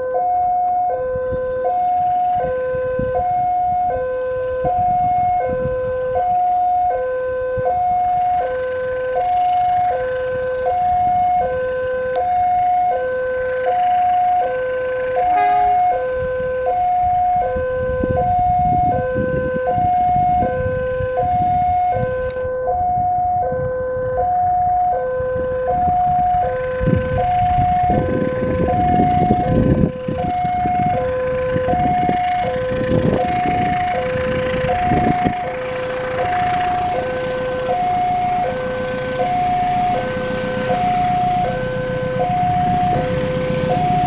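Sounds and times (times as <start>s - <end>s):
level crossing two-tone alarm: 0.0s - 44.0s.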